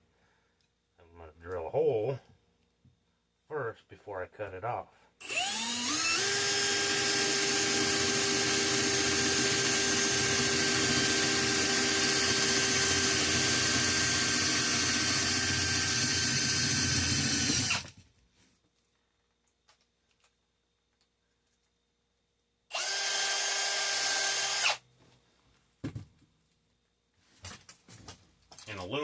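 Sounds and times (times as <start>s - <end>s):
electric drill boring metal: 5.2s - 17.9s, 22.7s - 24.8s.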